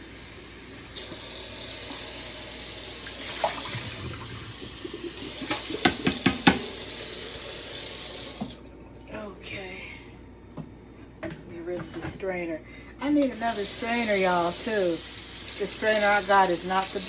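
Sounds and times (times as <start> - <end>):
tap running into sink: 3.4 - 6.8, 8.3 - 8.6
container knocking against sink: 5.4 - 6.7.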